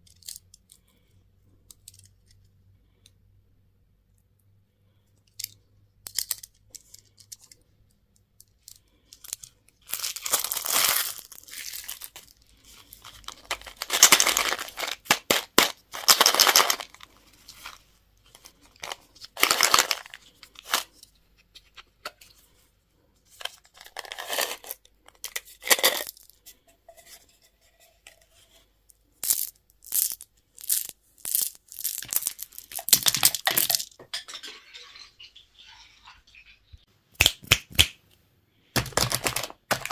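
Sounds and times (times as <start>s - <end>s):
plastic packaging crinkling: 9.2s - 21.0s, 29.3s - 35.3s, 38.8s - 39.9s.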